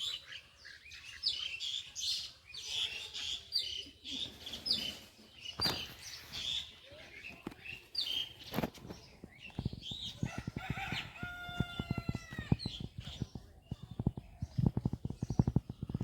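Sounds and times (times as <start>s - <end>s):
small birds chirping: 0.0s - 16.0s
rooster crowing: 10.2s - 12.6s.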